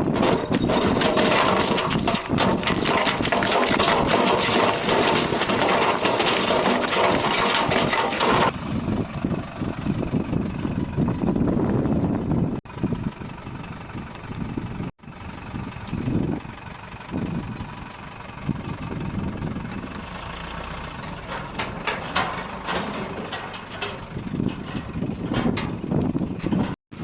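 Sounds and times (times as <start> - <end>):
sharp knocks and clatters: 0.0 - 8.6, 20.7 - 26.8
heavy diesel machinery engine running: 0.0 - 27.0.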